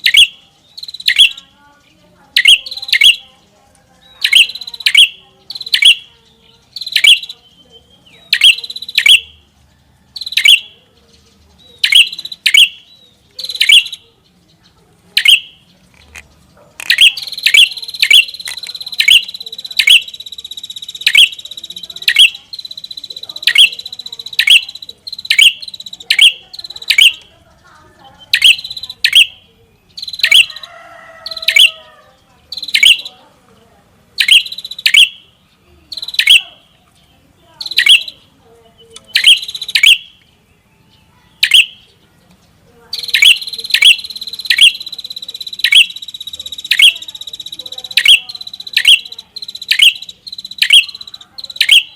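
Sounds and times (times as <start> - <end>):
steady high bird trill: 0.0 - 33.4, 34.1 - 51.9.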